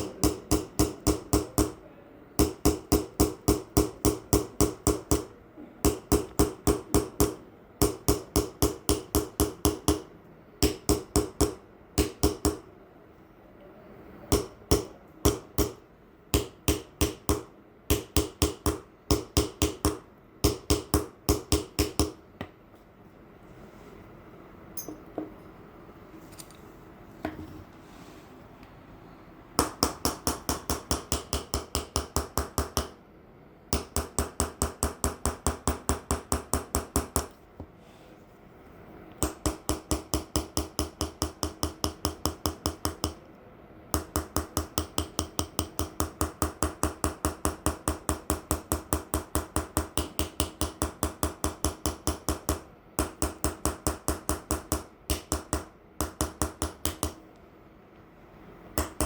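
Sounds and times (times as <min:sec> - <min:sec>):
hammer tapping engraving chisel: 0:00.0 - 0:01.8, 0:02.4 - 0:12.7, 0:14.3 - 0:22.2, 0:29.6 - 0:33.0, 0:33.7 - 0:37.3, 0:39.2 - 0:43.2, 0:43.9 - 0:57.2, 0:58.8 - 0:59.0.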